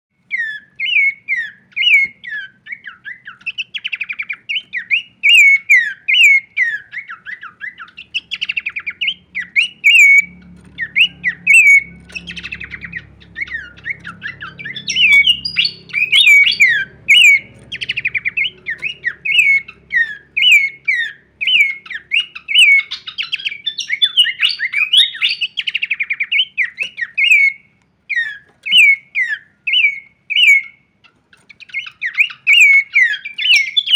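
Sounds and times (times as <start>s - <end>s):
bird singing whistled notes: 0.3s - 30.9s, 31.5s - 33.9s.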